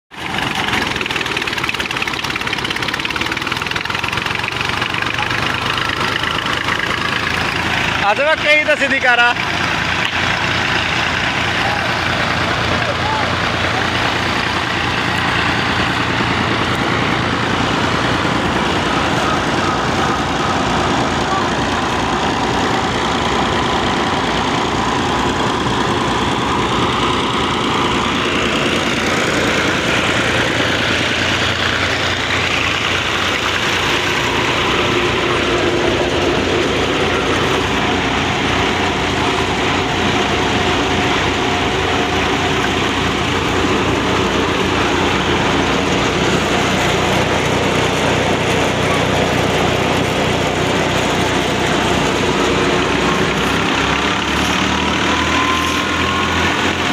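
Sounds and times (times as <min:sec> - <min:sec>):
diesel tractor engine running: 0:00.0 - 0:56.9
thresher mechanical hum: 0:00.2 - 0:56.9.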